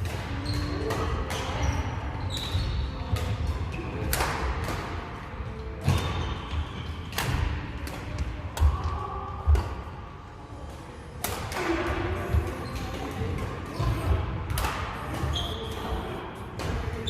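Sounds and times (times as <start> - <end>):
shoe squeaks: 0.4 - 3.1, 5.8 - 7.1, 15.2 - 16.0
racket hits and thuds: 2.3 - 5.1, 5.8 - 8.9, 11.2 - 15.8.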